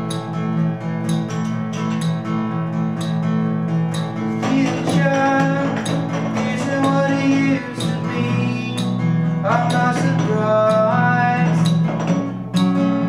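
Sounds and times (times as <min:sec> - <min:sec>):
acoustic guitar strumming: 0:00.0 - 0:13.0
person singing: 0:04.3 - 0:12.1.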